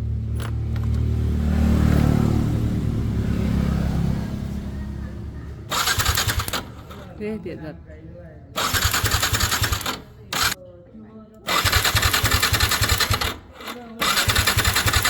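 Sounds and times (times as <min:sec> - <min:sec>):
motorcycle engine running: 0:00.0 - 0:07.2, 0:08.6 - 0:10.6, 0:11.5 - 0:15.0.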